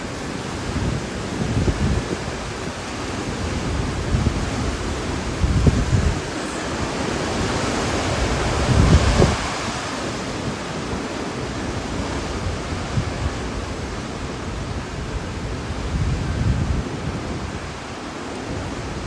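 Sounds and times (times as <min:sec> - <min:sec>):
strong wind rushing: 0:00.0 - 0:17.9
wind gusts buffeting microphone: 0:00.0 - 0:19.0.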